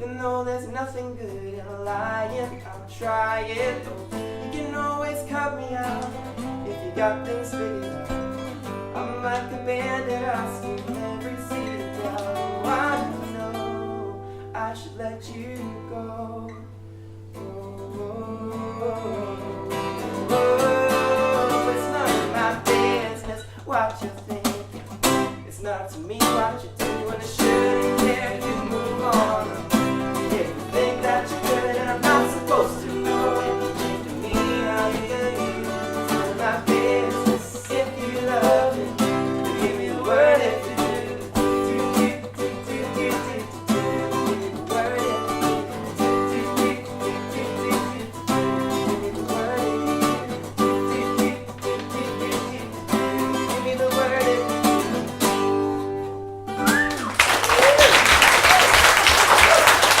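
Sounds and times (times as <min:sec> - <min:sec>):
live band guitar music: 0:01.8 - 0:14.5, 0:19.2 - 1:00.0
audience applause: 0:56.7 - 1:00.0.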